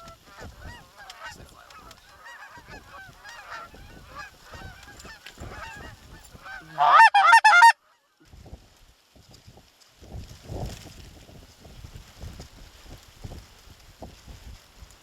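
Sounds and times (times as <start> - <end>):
geese honking: 0.0 - 7.8.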